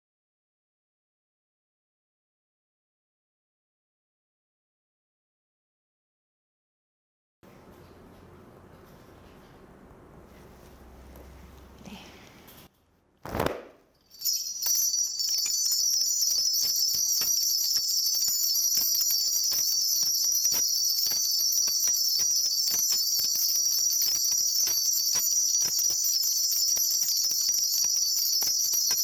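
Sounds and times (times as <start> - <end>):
bells jingling: 14.0 - 29.0.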